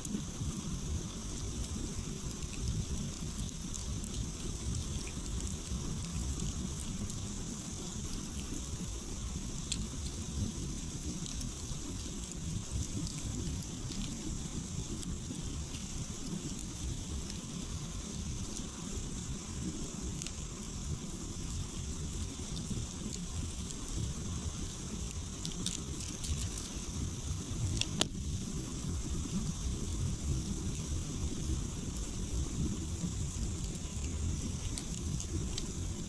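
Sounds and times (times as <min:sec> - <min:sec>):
campfire crackling: 0:00.0 - 0:36.0
low steady rumble: 0:00.0 - 0:36.0.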